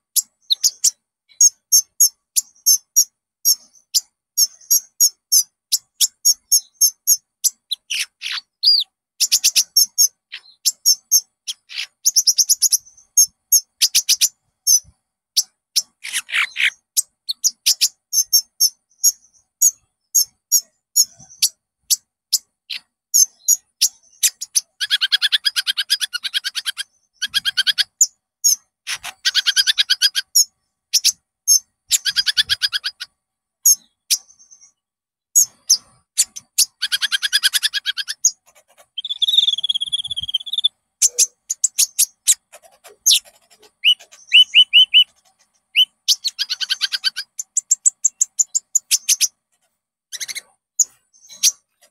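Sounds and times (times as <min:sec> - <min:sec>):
bird chirps and trills: 0:00.0 - 0:51.9
bird whistled warble: 0:39.0 - 0:42.4, 0:43.1 - 0:45.1, 0:45.7 - 0:49.2.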